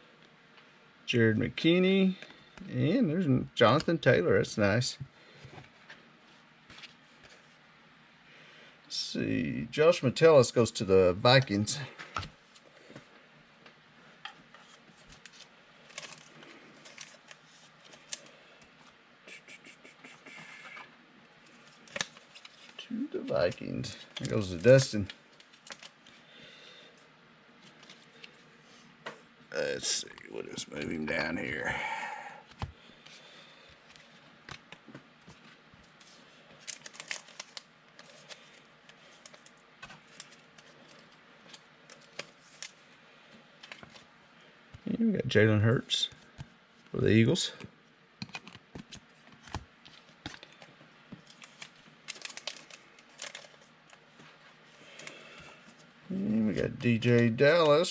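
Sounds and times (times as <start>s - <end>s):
trading cards rustling and clicking: 14.5s - 19.0s, 20.0s - 26.1s, 33.8s - 42.8s, 43.6s - 44.1s, 48.2s - 54.0s, 54.8s - 55.3s
plastic crinkling: 36.6s - 42.8s, 48.4s - 54.0s
cards handled on a table: 48.2s - 52.7s.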